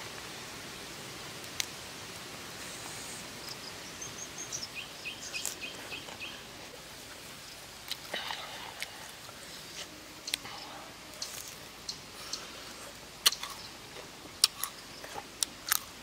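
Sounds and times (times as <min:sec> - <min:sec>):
outdoor background hiss: 0:00.0 - 0:16.0
bird chirping: 0:03.4 - 0:06.6, 0:10.2 - 0:13.8.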